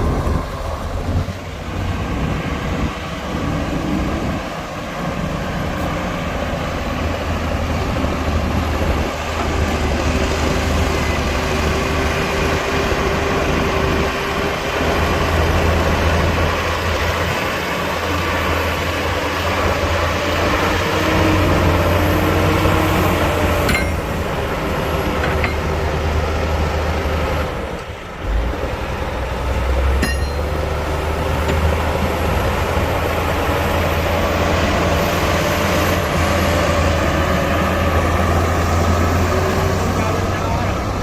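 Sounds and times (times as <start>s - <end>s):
diesel earthmoving machinery running: 0.0s - 41.0s.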